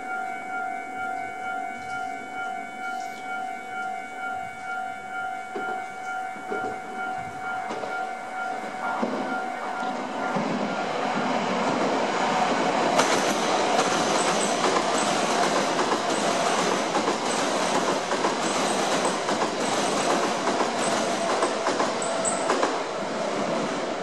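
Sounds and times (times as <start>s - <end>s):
train wheels rumbling on rails: 5.5s - 24.0s
clickety-clack over rail joints: 6.5s - 8.0s, 10.3s - 23.8s.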